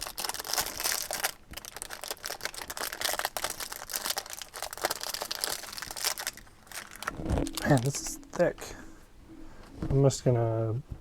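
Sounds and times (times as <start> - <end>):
wrapper crinkling and tearing: 0.0 - 8.4.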